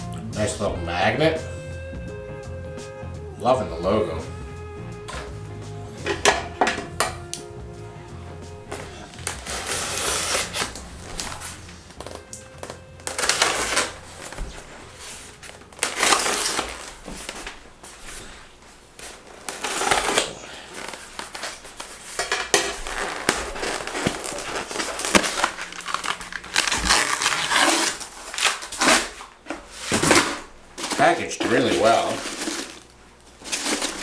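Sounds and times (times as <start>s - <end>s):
hands rustling packing peanuts: 8.6s - 34.0s.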